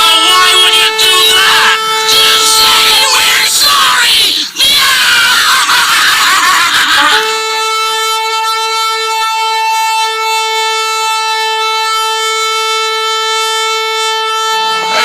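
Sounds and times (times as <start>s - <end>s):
horn blowing long steady note: 0.0s - 3.8s, 6.3s - 15.0s
loud shouting: 0.0s - 7.6s, 14.7s - 15.0s.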